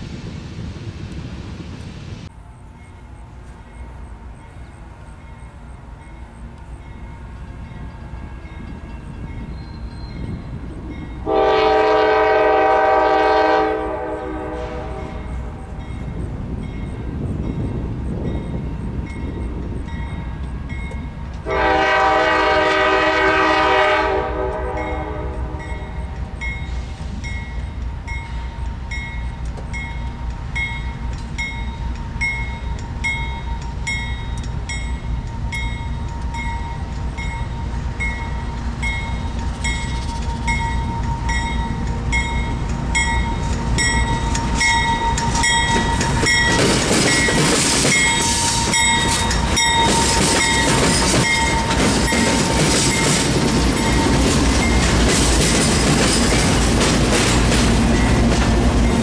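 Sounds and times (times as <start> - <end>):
diesel locomotive rumble: 0.0 - 59.0
crossing bell ringing: 2.4 - 56.8, 57.4 - 59.0
train horn blast: 11.2 - 15.9, 21.4 - 27.2
wheels clicking over rail joints: 25.6 - 59.0.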